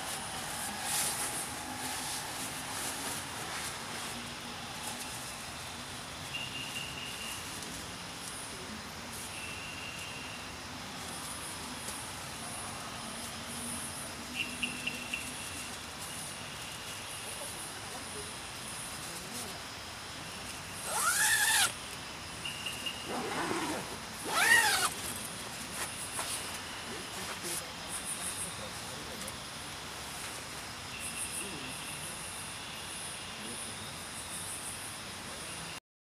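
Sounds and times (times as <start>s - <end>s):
crickets chirping: 0.0s - 35.8s
loud rising and falling calls: 20.8s - 21.7s.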